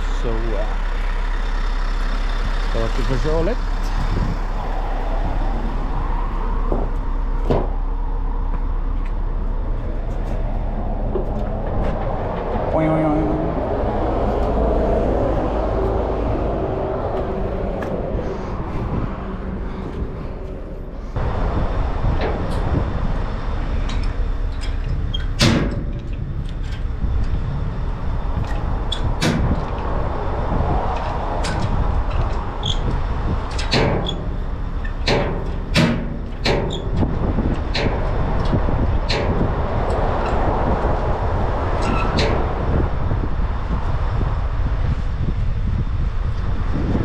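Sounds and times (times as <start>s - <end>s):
truck engine running: 0.0s - 47.0s
sharp knocks and clatters: 28.4s - 29.8s, 31.0s - 39.5s.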